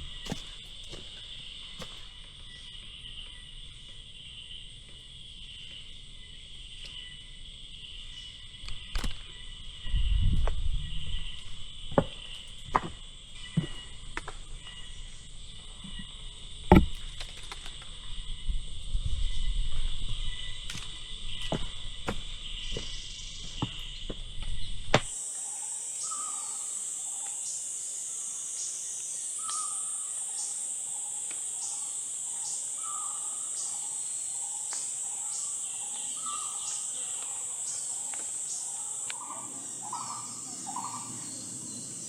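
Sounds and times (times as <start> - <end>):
insects droning: 0.0 - 42.0
bird calling: 20.2 - 42.0
footsteps on trail: 20.9 - 25.2.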